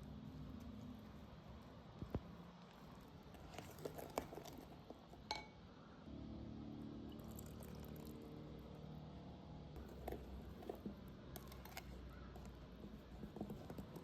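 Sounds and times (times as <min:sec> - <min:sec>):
glass or crockery clinking: 0:05.3 - 0:05.6.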